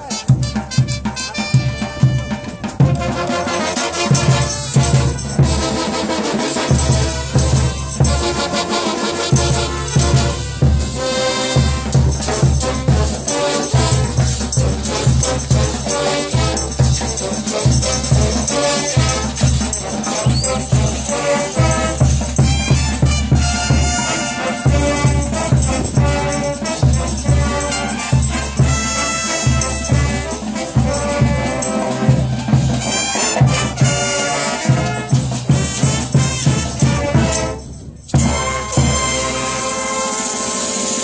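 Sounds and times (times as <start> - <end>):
brass band playing cumbia: 0.0 - 41.0.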